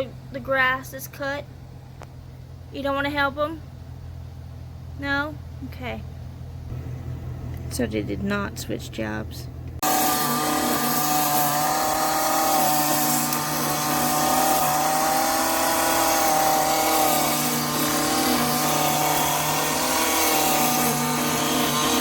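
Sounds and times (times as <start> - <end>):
small petrol engine running: 9.8 - 22.0.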